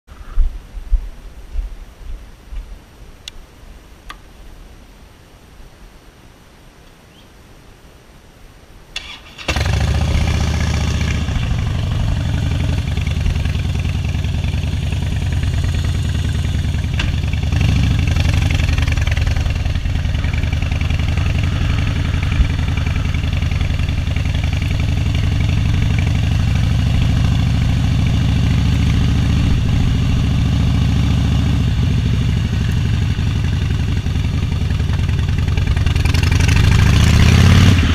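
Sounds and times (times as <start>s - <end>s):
vehicle engine running: 9.6s - 37.9s.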